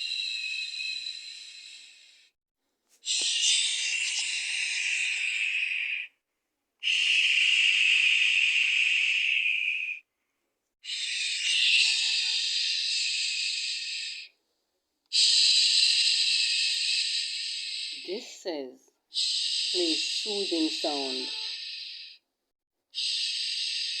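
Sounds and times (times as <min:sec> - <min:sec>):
person shushing: 0:18.0 - 0:18.8, 0:19.8 - 0:22.0.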